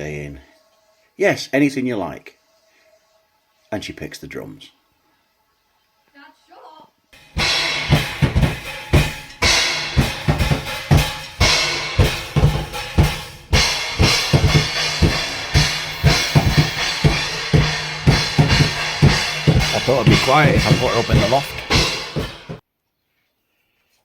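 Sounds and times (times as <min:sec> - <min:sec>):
bass drum and snare beat: 0:07.2 - 0:22.6
cymbal crash: 0:07.2 - 0:22.6.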